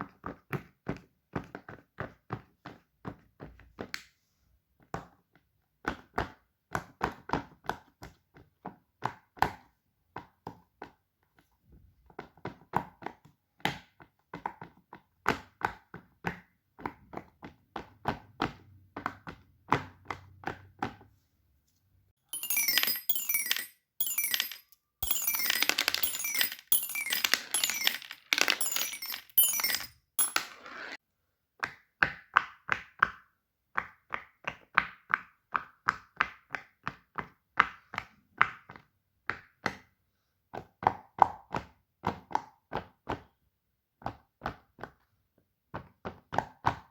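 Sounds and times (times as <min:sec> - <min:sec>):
bright rattling and clinking: 0:22.3 - 0:31.0
plastic toys clicking: 0:22.4 - 0:30.6.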